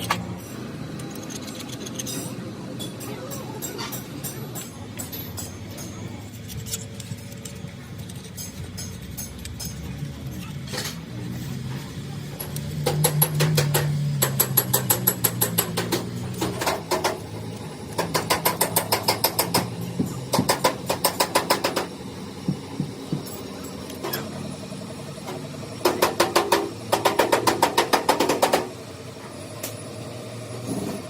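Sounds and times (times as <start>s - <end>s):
low machine hum: 0.0s - 31.0s
rapid metal strikes: 12.4s - 17.3s, 17.9s - 23.3s, 25.8s - 28.8s.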